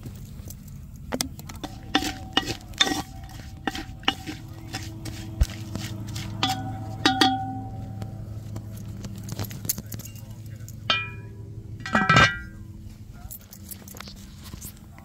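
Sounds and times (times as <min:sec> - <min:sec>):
steady low hum: 0:00.0 - 0:15.0
utensils clinking on metal cookware: 0:01.3 - 0:08.1, 0:08.8 - 0:12.6.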